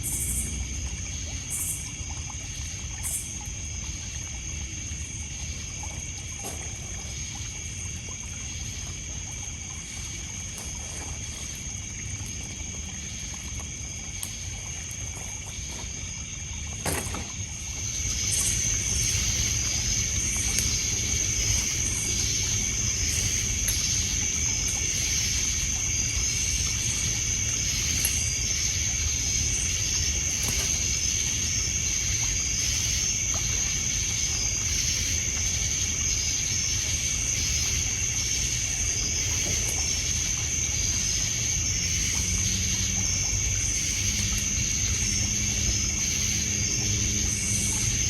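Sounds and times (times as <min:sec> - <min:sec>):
crickets trilling: 0:00.0 - 0:48.0
water lapping on pebble shore: 0:00.0 - 0:48.0
wood fire crackling: 0:09.1 - 0:36.4.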